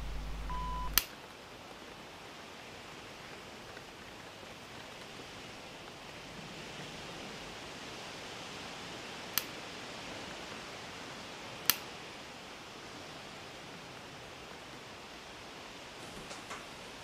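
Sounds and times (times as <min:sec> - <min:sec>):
sharp click: 0:00.0 - 0:01.1
steady hiss: 0:00.0 - 0:17.0.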